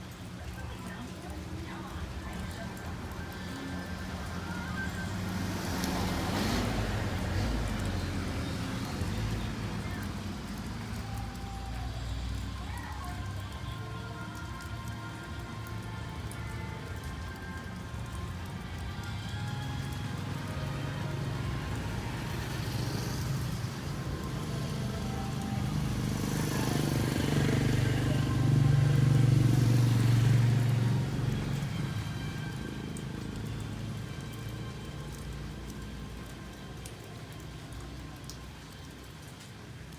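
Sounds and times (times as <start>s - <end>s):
low rumble of traffic engines: 0.0s - 39.9s
vehicle passing: 1.3s - 12.5s, 17.0s - 36.6s.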